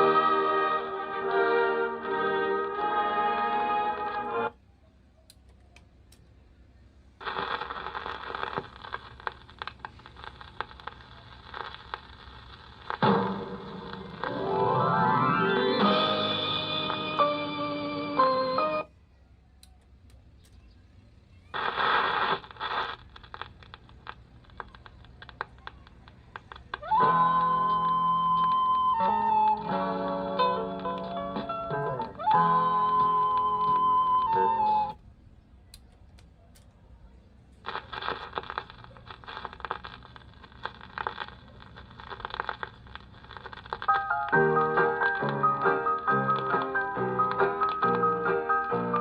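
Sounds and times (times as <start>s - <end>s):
music from record: 0.0s - 4.6s, 10.6s - 18.9s, 21.6s - 23.4s, 26.4s - 35.0s, 37.7s - 49.0s
stylus crackles and ticks: 7.2s - 13.0s, 21.5s - 28.8s, 37.5s - 49.0s.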